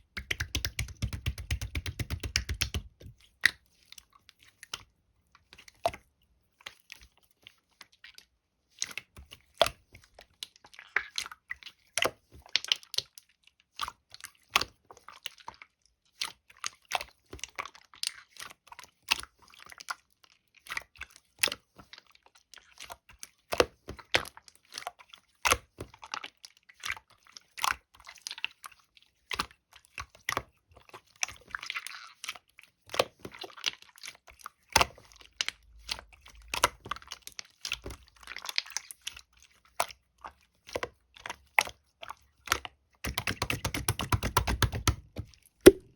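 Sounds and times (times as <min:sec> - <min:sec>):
slime clicking and popping: 0:00.0 - 0:03.6, 0:43.1 - 0:45.9
slime squishing: 0:00.0 - 0:04.9, 0:29.3 - 0:45.9.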